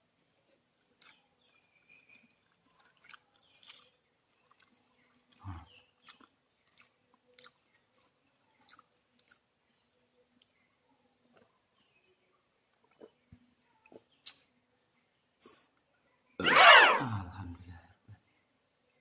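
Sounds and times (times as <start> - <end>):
person chewing and crunching: 4.5 - 9.4.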